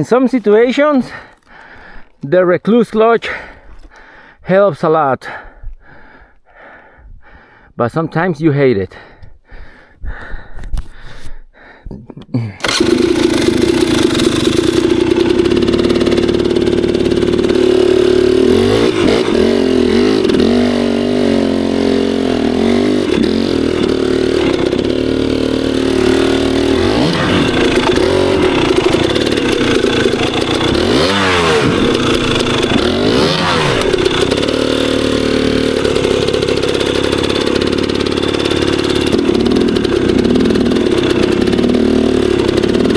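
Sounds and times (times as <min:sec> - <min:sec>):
dirt bike engine revving: 0:12.6 - 0:42.9.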